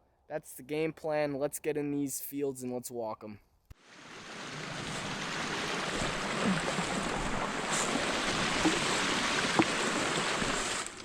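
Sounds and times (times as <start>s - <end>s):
grass rustling against clothing: 4.4s - 11.0s.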